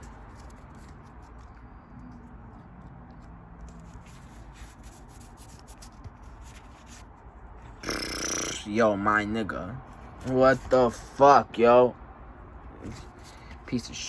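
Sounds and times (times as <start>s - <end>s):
trading cards clicking and rustling: 0.0s - 7.0s.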